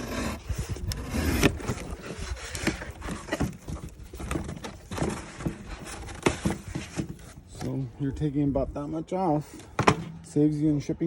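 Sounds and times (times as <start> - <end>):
knife cutting cardboard: 0.0 - 7.3.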